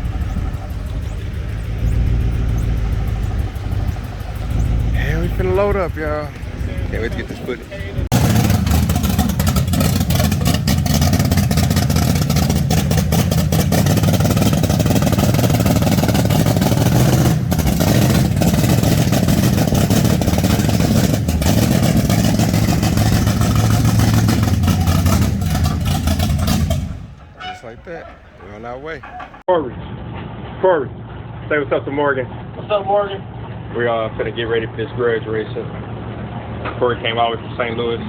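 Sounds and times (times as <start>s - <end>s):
car engine running: 0.0s - 29.4s.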